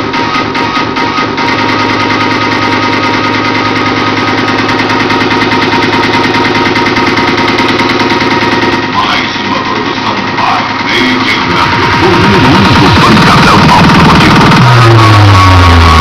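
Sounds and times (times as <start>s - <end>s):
computer mechanical hum: 0.0s - 16.0s.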